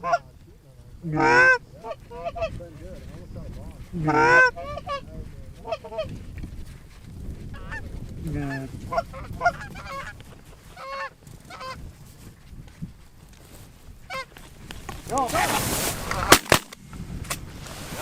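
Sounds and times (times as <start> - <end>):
geese honking: 0.0 - 3.3, 3.9 - 6.2, 7.6 - 11.8, 14.0 - 14.4.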